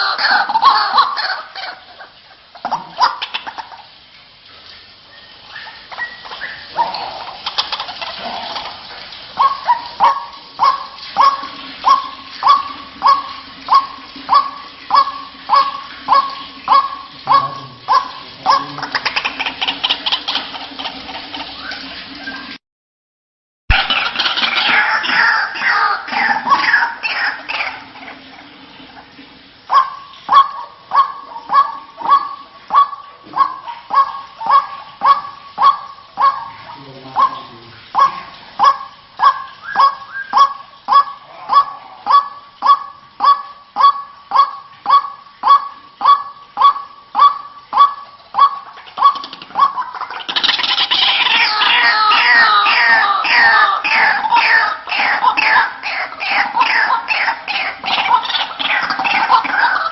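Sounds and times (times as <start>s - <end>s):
waterhen calling: 0.0s - 22.6s, 23.7s - 59.9s.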